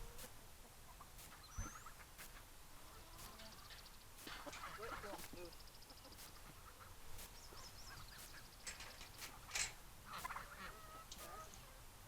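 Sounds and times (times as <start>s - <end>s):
turkeys calling: 0.0s - 11.8s
rustling: 1.1s - 11.6s
high bird chirps: 1.3s - 2.0s, 3.1s - 9.6s.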